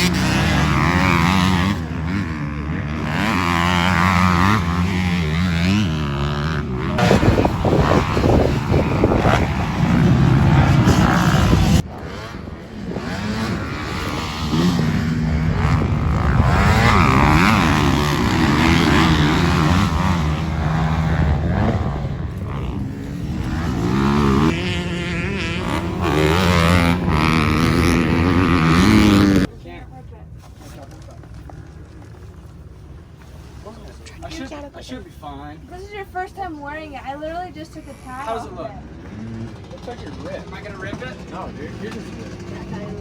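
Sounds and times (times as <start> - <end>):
dirt bike engines revving: 0.0 - 43.0.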